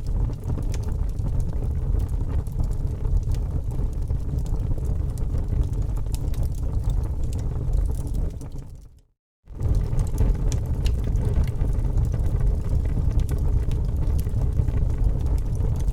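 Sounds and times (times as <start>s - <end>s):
campfire crackling and popping: 0.0s - 8.9s, 9.5s - 15.9s
wind on microphone: 9.5s - 15.9s.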